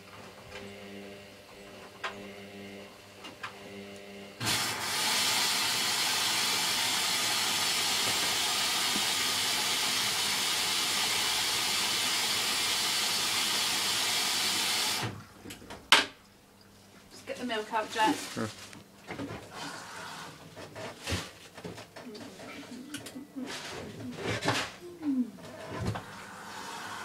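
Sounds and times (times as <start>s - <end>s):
water rushing into washing machine: 4.4s - 15.5s, 19.5s - 20.4s, 25.5s - 27.0s.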